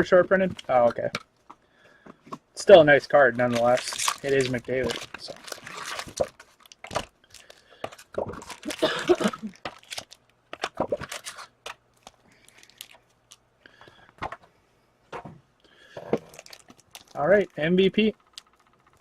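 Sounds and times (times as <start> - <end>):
card packaging tearing and crinkling: 3.2 - 13.0.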